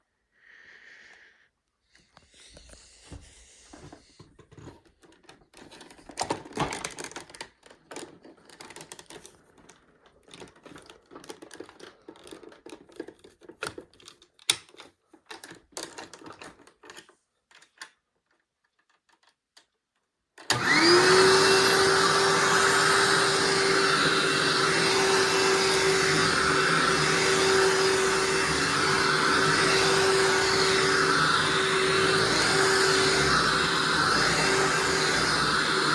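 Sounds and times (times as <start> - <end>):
clicks and rattles of handling: 3.7 - 20.5
vacuum cleaner motor running: 20.5 - 35.9.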